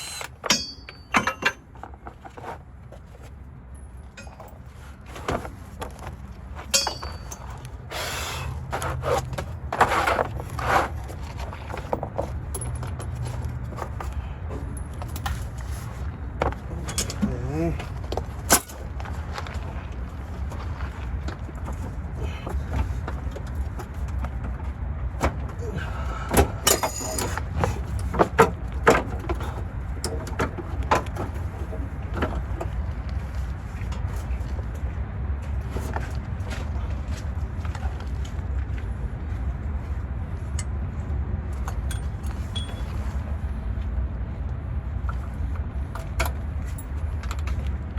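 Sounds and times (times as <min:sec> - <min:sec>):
metal tools clanking: 0:00.0 - 0:02.4, 0:04.0 - 0:05.5, 0:06.6 - 0:07.8, 0:16.7 - 0:18.8, 0:26.4 - 0:32.5, 0:41.7 - 0:43.2
metal tools clinking and scraping: 0:00.0 - 0:02.6, 0:03.7 - 0:05.5, 0:06.6 - 0:15.9, 0:16.7 - 0:18.8, 0:26.6 - 0:28.5, 0:41.7 - 0:43.2.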